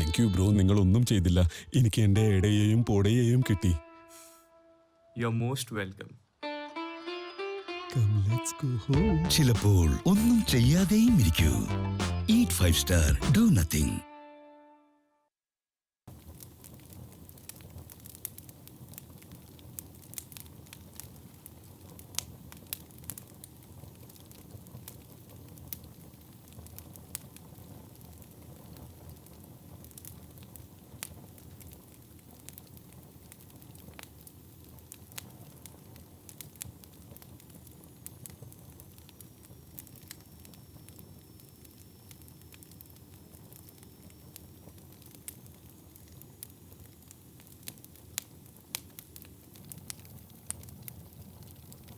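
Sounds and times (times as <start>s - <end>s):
wood crackling and popping: 9.3s - 13.9s, 16.1s - 51.9s
flames rushing: 16.1s - 51.9s.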